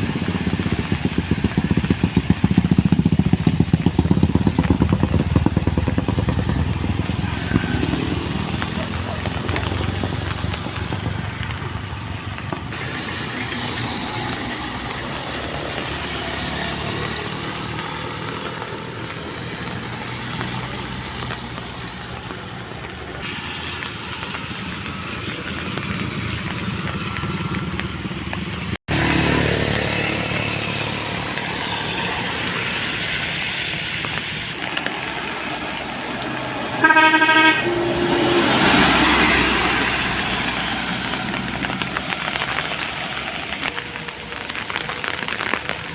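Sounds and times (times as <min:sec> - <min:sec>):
vehicle engines running: 0:00.0 - 0:45.9
horn honk: 0:36.7 - 0:38.1.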